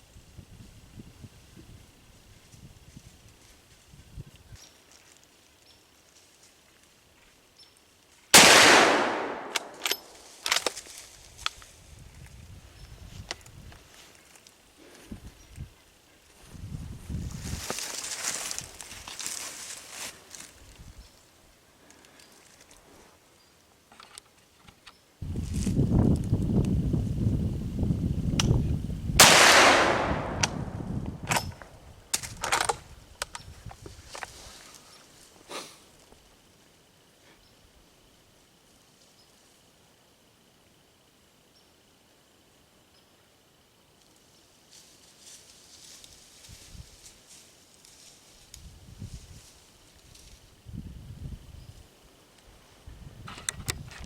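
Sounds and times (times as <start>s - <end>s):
shotgun blast: 8.4s - 9.8s, 29.2s - 30.8s.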